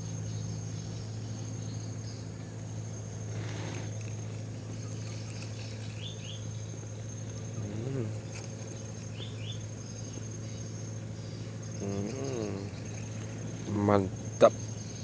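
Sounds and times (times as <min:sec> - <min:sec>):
insects trilling: 0:00.0 - 0:15.0
steady low hum: 0:00.0 - 0:15.0.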